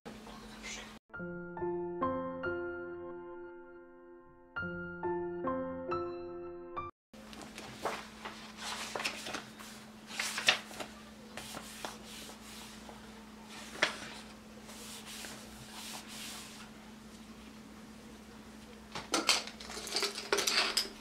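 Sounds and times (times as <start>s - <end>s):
piano tune: 1.1s - 6.9s.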